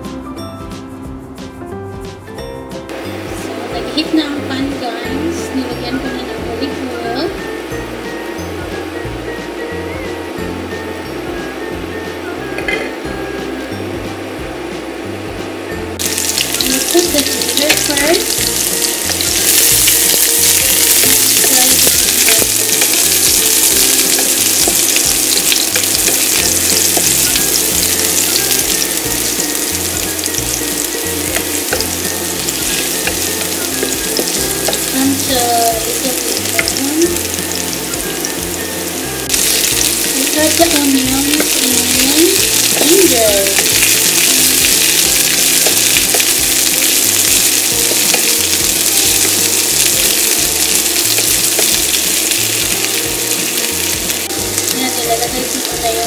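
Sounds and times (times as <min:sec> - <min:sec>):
garlic sizzling in oil: 0:02.9 - 0:56.0
wooden spatula stirring: 0:16.1 - 0:35.2.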